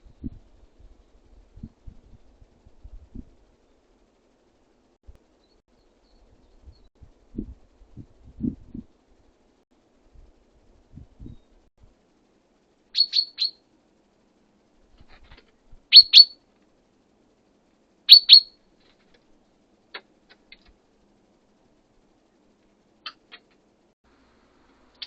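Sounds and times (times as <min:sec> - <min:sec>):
songbird chirping: 0:12.9 - 0:13.7, 0:15.9 - 0:16.4, 0:18.1 - 0:18.6.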